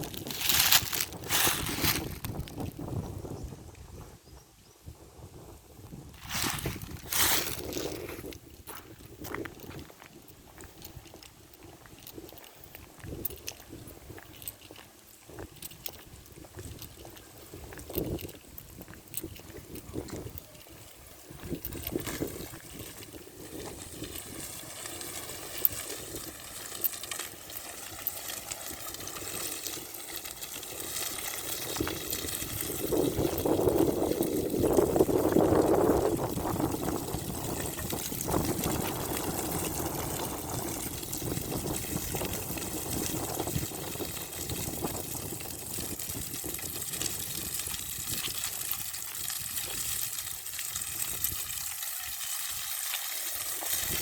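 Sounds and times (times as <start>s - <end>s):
rushing wind: 0.0s - 11.2s, 31.7s - 48.5s.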